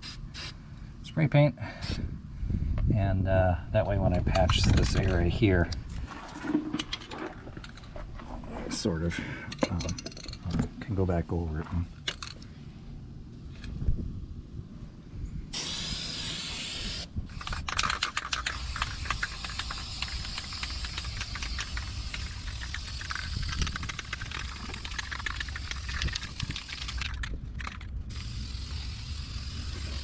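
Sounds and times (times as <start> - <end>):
spray paint can hissing: 0.0 - 0.6, 15.6 - 30.0.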